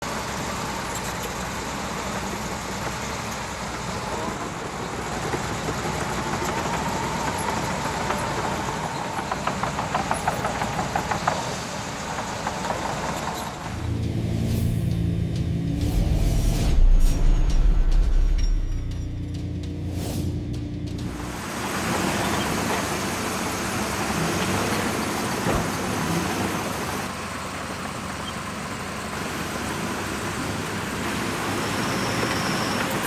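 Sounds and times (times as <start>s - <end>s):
bulldozer diesel engine running: 0.0s - 33.0s
music: 13.8s - 21.3s.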